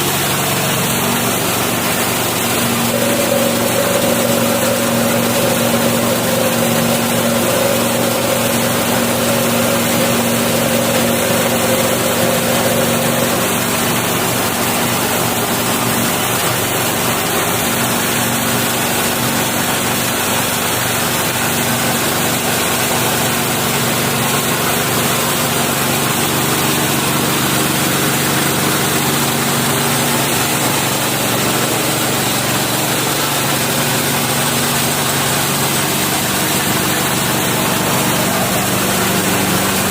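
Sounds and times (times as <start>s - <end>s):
engine drone: 0.1s - 39.9s
milling machine hissing: 2.7s - 14.0s.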